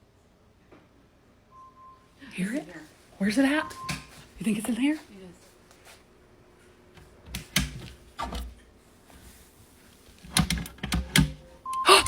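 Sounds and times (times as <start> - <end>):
tablet timer alarm beeping: 11.6 - 12.0.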